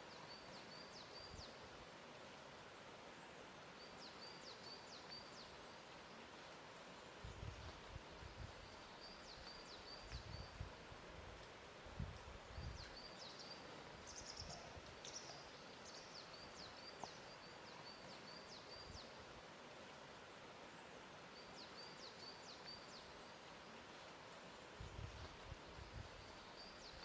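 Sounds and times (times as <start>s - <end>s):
soft steady hiss: 0.0s - 27.0s
small birds chirping: 12.2s - 19.2s.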